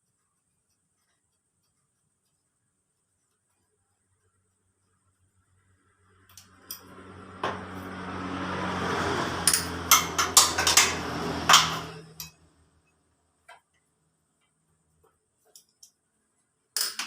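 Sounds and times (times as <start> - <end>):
sharp metallic clinks and knocks: 6.3 - 7.6, 9.4 - 12.5.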